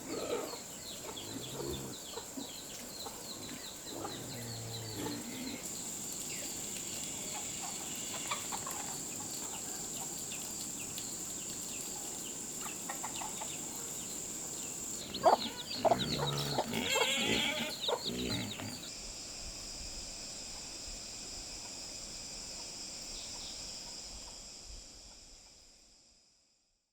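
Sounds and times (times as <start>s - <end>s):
chickens clucking: 0.0s - 6.4s, 7.0s - 10.3s, 11.5s - 18.9s.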